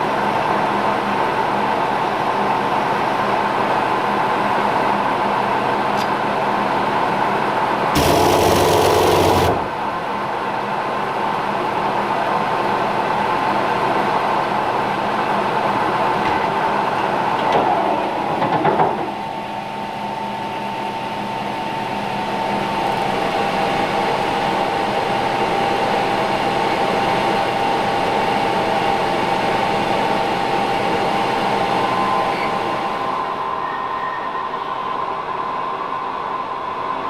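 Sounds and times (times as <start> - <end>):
metal lathe humming and whining: 8.0 - 9.8.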